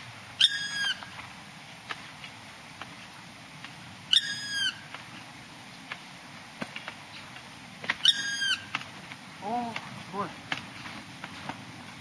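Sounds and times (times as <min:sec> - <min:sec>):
woodpecker high call: 0:00.4 - 0:01.2, 0:04.1 - 0:04.8, 0:08.0 - 0:08.7.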